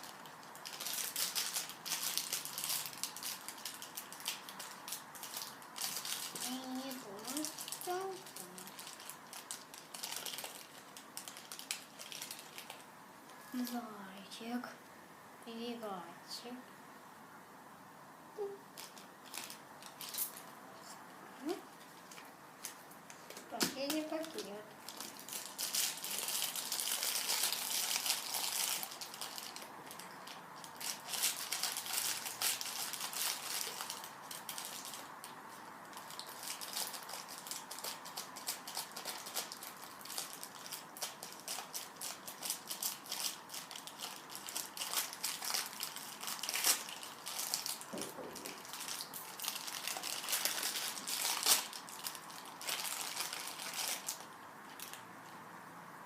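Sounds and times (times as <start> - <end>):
plastic packet crinkling: 0.0 - 12.9, 18.7 - 20.6, 21.4 - 55.1.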